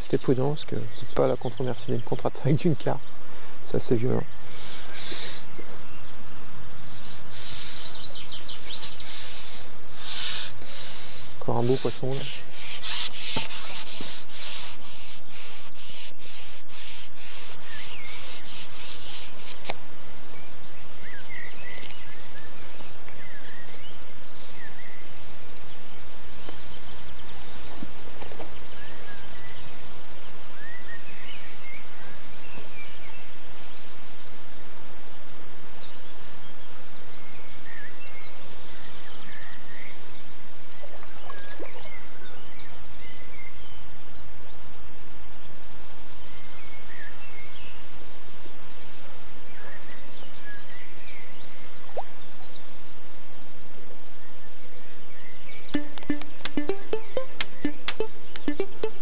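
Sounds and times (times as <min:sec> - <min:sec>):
small birds chirping: 0:00.0 - 0:30.0, 0:46.7 - 0:59.0
outdoor background hiss: 0:00.0 - 0:59.0
rhythmic rubbing: 0:06.9 - 0:19.5, 0:55.8 - 0:59.0.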